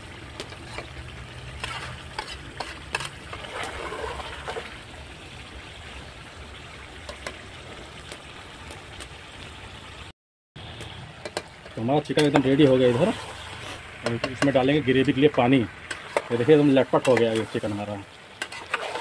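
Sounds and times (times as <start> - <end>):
chicken and masala sizzling in oil: 0.0 - 19.0
spoon scraping and knocking pot: 1.6 - 3.8, 15.9 - 17.6, 18.4 - 19.0.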